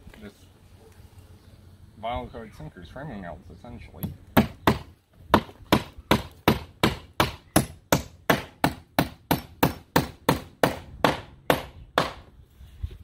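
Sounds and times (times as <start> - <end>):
hammer striking nails into wood: 4.0 - 12.3.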